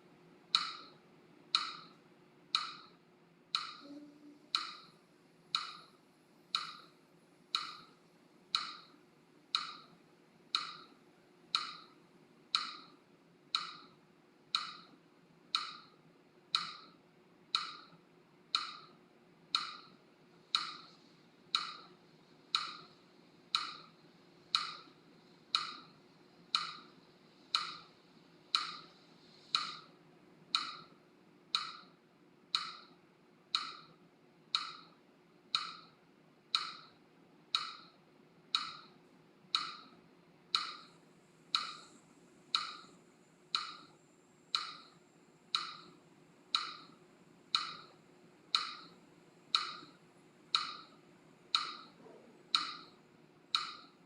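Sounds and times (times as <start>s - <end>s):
metronome ticking: 0.5s - 4.9s, 5.5s - 5.9s, 6.5s - 6.9s, 7.5s - 7.9s, 8.5s - 9.9s, 10.5s - 10.9s, 11.5s - 13.9s, 14.5s - 16.9s, 17.5s - 18.9s, 19.5s - 19.9s, 20.5s - 21.9s, 22.5s - 23.9s, 24.5s - 24.9s, 25.5s - 25.9s, 26.5s - 26.9s, 27.5s - 27.9s, 28.5s - 28.9s, 30.5s - 30.9s, 31.5s - 31.9s, 32.5s - 32.9s, 33.5s - 35.0s, 35.6s - 35.9s, 36.6s - 36.9s, 37.6s - 38.0s, 38.6s - 38.9s, 39.6s - 41.0s, 41.6s - 42.9s, 43.6s - 43.9s, 44.6s - 44.9s, 45.6s - 45.9s, 46.6s - 47.9s, 48.6s - 50.9s, 51.5s - 52.0s, 52.6s - 52.9s, 53.5s - 53.9s.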